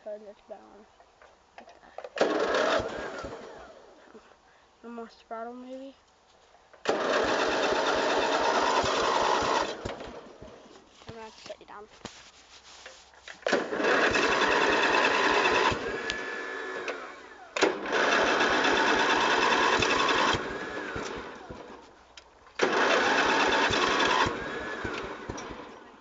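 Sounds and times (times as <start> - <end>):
electric starter cranking engine: 2.0 - 4.0, 6.7 - 10.6, 13.4 - 26.0.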